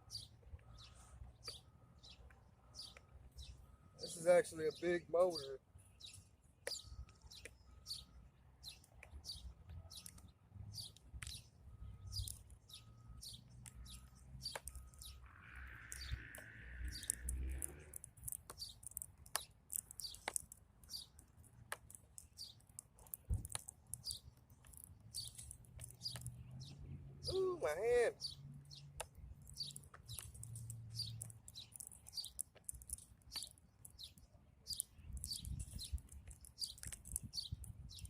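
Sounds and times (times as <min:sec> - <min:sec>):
small birds chirping: 0:00.0 - 0:38.0
faint clicks: 0:13.6 - 0:26.4, 0:29.0 - 0:38.0.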